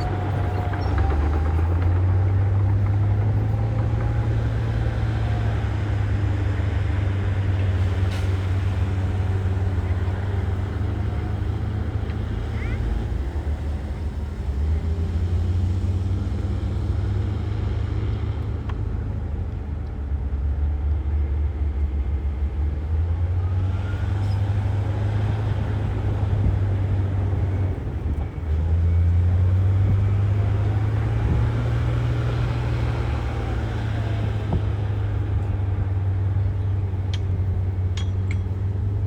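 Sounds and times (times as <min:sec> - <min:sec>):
diesel machinery engine: 0:00.0 - 0:39.0.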